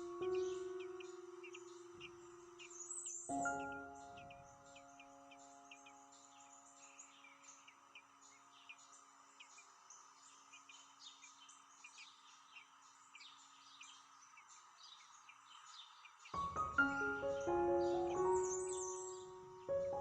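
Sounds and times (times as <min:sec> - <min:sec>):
music: 0:00.0 - 0:06.3, 0:16.4 - 0:20.0
small birds chirping: 0:00.0 - 0:20.0
held musical tones: 0:16.4 - 0:20.0.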